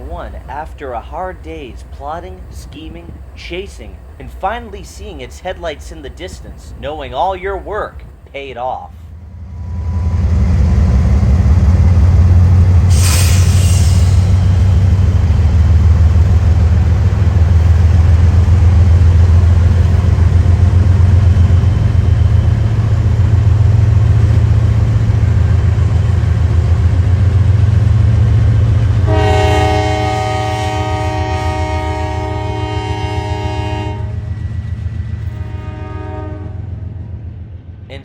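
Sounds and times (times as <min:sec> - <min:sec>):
diesel locomotive engine rumble: 0:00.0 - 0:38.0
locomotive horn chord: 0:29.0 - 0:34.3, 0:35.4 - 0:36.9.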